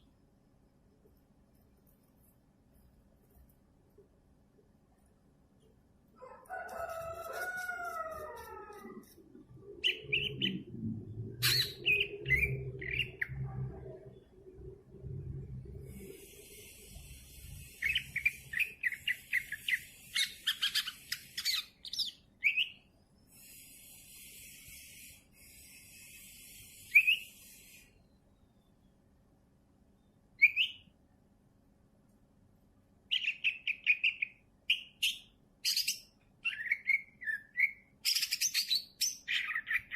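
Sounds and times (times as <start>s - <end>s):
low steady hum: 0.0s - 21.5s
rooster crowing: 6.2s - 9.2s
high bird chirps: 9.5s - 10.7s, 11.4s - 13.4s, 17.3s - 28.6s, 30.4s - 30.9s, 33.1s - 39.9s
bird whistled calls: 11.4s - 13.1s, 26.7s - 27.7s, 30.4s - 30.8s
high ambient hiss: 15.6s - 21.8s, 22.9s - 30.4s.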